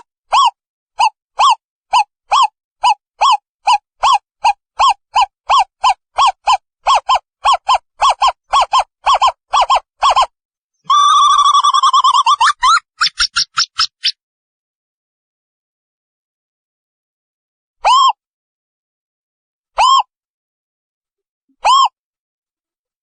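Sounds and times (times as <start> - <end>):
owlet hooting and trilling: 0.3 - 13.4.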